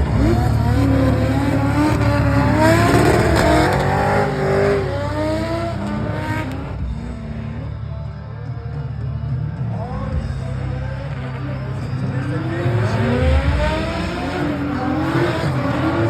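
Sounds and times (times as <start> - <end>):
car engines revving hard: 0.0 - 8.1, 9.7 - 16.0.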